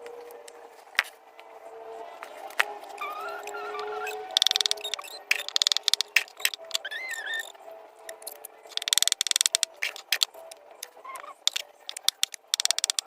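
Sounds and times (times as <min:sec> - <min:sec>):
birds pecking and dabbling: 0:03.3 - 0:07.5, 0:08.1 - 0:13.0.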